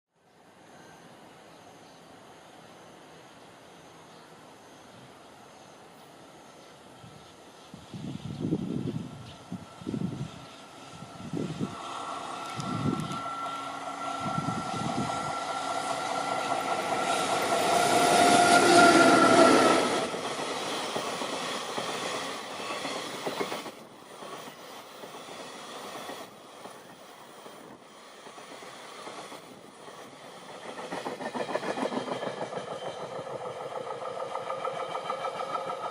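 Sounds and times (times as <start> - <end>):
electric locomotive whine: 0.2 - 35.9.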